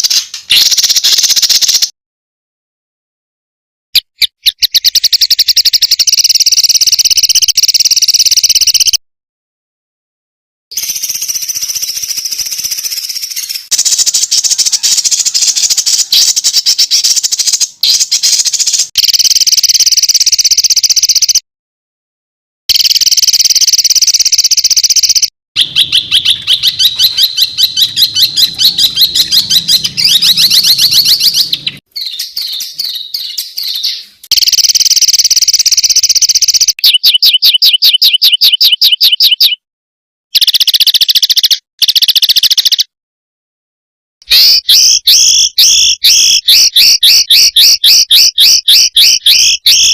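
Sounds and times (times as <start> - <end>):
songbird chirps and trills: 10.8 - 21.4, 22.9 - 39.6.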